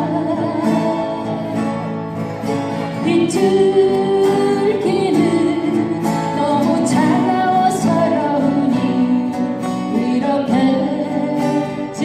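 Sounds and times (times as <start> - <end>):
acoustic guitar: 0.0 - 12.0
person singing folk song: 0.0 - 12.0.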